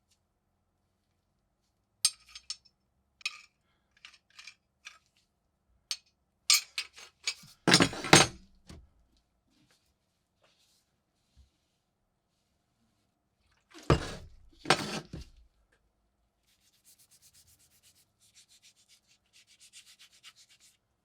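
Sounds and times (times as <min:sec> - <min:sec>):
metal tool parts clinking: 0:02.1 - 0:02.6, 0:03.2 - 0:05.0, 0:06.5 - 0:08.4, 0:13.8 - 0:15.2.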